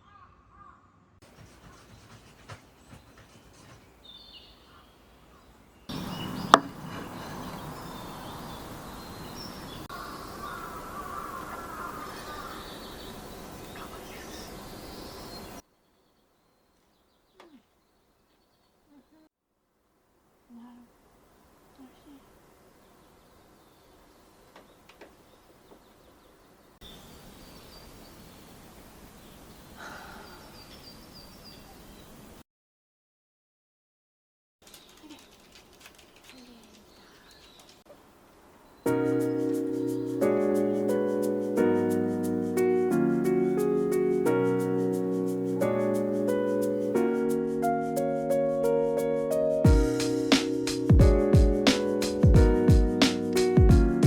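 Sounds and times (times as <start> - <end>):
birds calling: 0.0 - 19.2, 34.6 - 41.4
steady hiss: 20.0 - 26.1, 26.7 - 32.4, 35.0 - 54.0.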